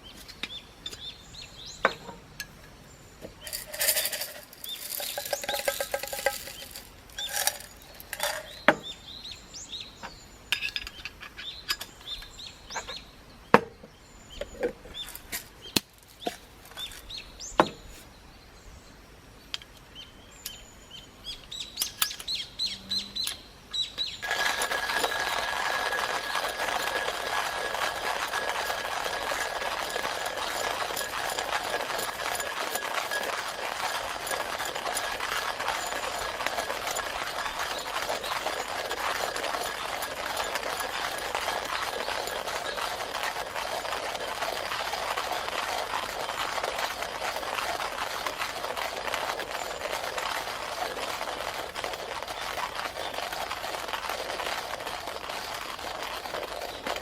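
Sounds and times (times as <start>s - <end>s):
wild birds chirping: 0.0s - 57.0s
clinks of coffee gear: 1.9s - 8.9s, 10.5s - 13.0s, 21.8s - 22.4s, 24.0s - 36.0s.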